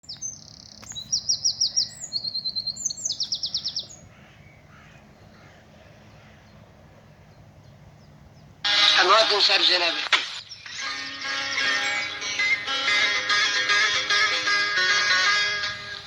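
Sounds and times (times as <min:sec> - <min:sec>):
songbird singing trilled phrases: 0:00.0 - 0:05.4, 0:10.3 - 0:12.7.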